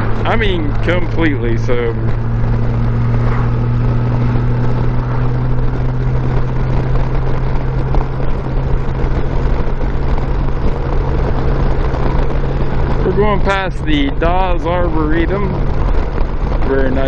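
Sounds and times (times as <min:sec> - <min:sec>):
motorcycle engine cruising: 0:00.0 - 0:17.0
wind and road noise: 0:00.0 - 0:17.0.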